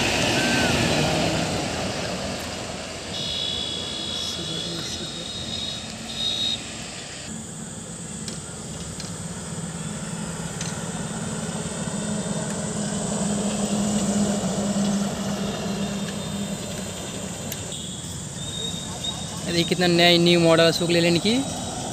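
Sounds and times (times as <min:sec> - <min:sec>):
heavy vehicle passing: 0:00.0 - 0:07.3, 0:09.3 - 0:17.7, 0:18.6 - 0:21.9
high beep: 0:03.2 - 0:06.8.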